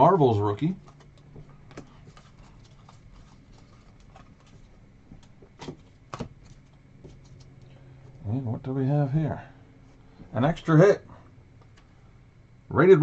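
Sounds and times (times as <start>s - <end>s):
trading cards being flipped: 0.8s - 7.7s.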